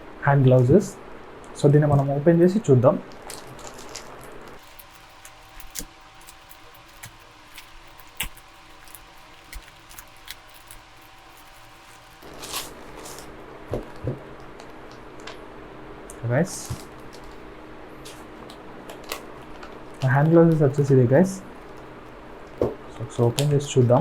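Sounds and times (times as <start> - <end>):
packaging crinkling: 3.1 - 14.0.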